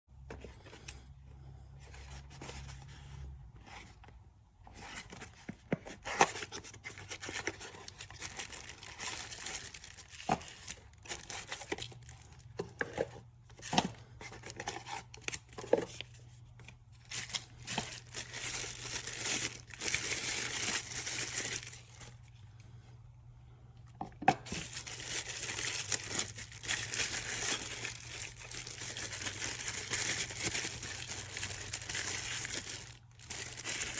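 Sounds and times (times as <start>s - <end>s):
packaging torn and crinkled: 7.2s - 12.4s, 17.0s - 22.2s, 24.5s - 33.9s.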